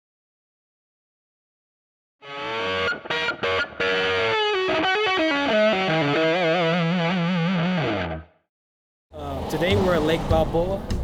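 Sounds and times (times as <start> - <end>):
distorted electric guitar: 2.2 - 8.4.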